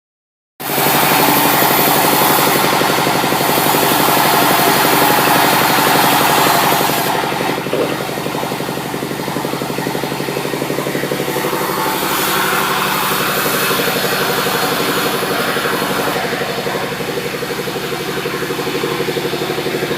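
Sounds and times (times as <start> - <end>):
saw cutting wood: 0.6 - 19.9
sawmill machinery humming: 0.6 - 19.9.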